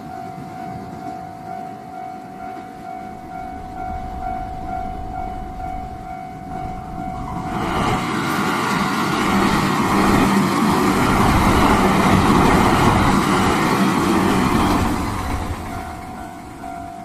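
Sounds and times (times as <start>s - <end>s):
level crossing warning bell: 0.0s - 17.0s
train rumbling past: 0.0s - 17.0s
steady hum: 3.0s - 8.0s.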